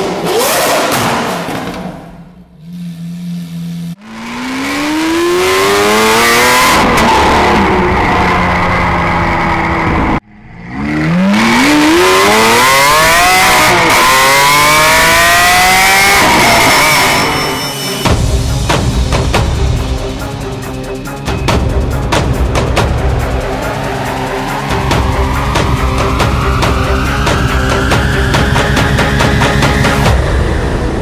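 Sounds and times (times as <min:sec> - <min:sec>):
car engine accelerating hard: 0:00.0 - 0:01.9, 0:02.6 - 0:17.4.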